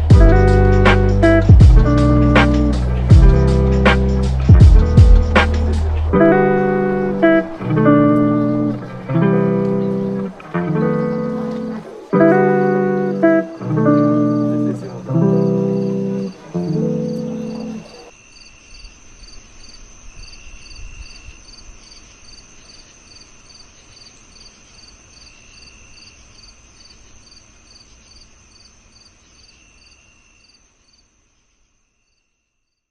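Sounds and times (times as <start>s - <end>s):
guitar music: 0.0s - 18.1s
crickets chirping: 0.0s - 32.9s.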